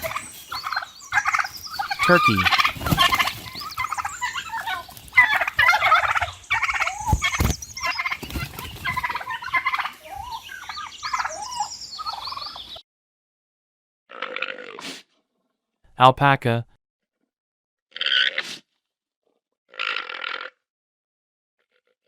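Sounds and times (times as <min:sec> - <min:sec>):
turkey gobbling: 0:00.0 - 0:12.6.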